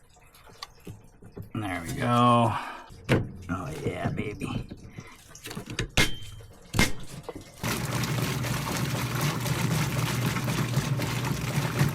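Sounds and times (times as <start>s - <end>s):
washing machine motor hum: 6.1s - 11.9s.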